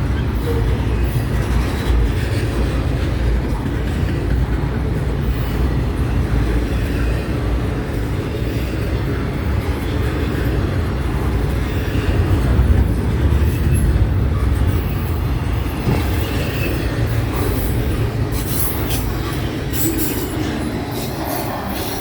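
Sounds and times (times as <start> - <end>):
freight train rumbling past: 0.0 - 22.0
wheels squealing and clicking: 13.4 - 22.0.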